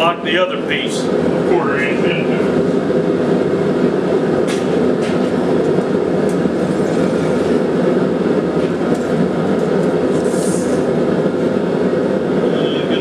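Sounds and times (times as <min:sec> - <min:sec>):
forge roaring: 0:00.0 - 0:13.0.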